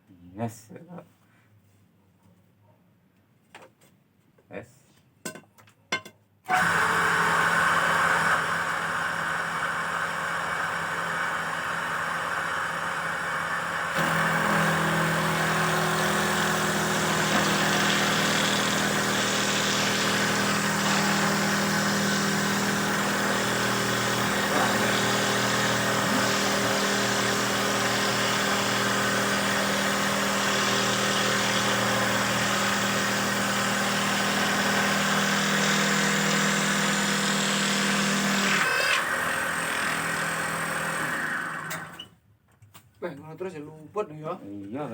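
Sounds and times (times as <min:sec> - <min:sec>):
machine motor running: 0:06.5 - 0:42.0.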